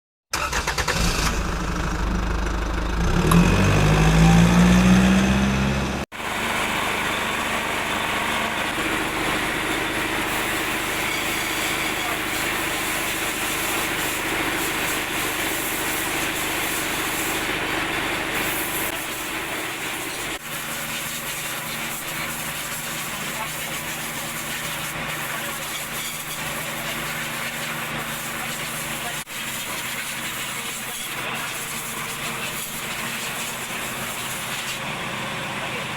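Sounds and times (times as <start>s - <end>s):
engine and machinery running: 0.3s - 35.9s
diesel engine revving: 0.4s - 20.4s.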